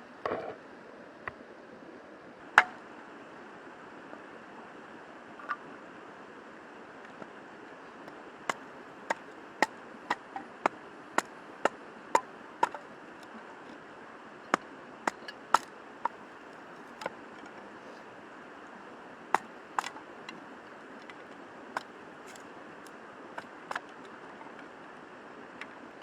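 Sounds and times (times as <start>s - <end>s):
chopping knocks: 2.6s - 2.8s, 12.6s - 12.8s, 15.1s - 16.2s, 19.4s - 20.0s, 23.4s - 24.0s.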